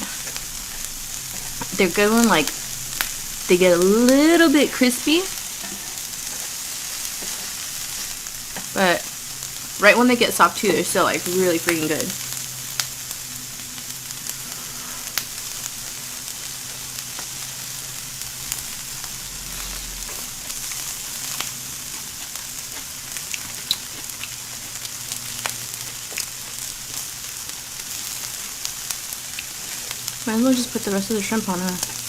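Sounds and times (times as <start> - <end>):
vegetables sizzling in oil: 0.0 - 32.0
sharp pops and crackles: 20.0 - 27.1.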